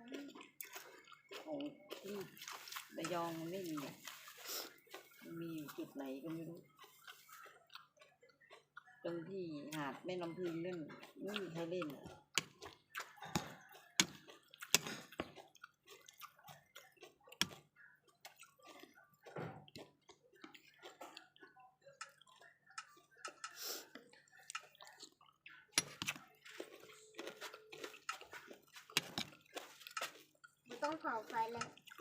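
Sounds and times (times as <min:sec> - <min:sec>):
water splashing: 0:02.1 - 0:04.7.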